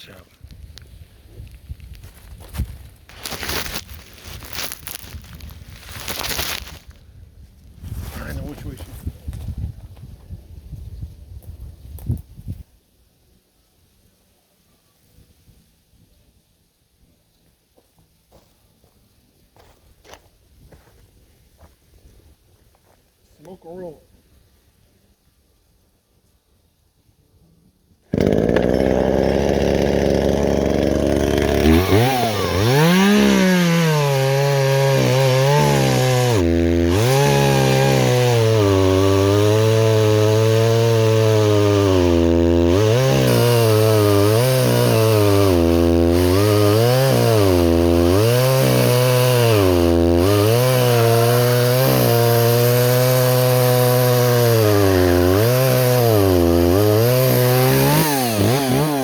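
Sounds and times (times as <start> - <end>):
chainsaw cutting wood: 3.1 - 5.2, 28.1 - 59.0.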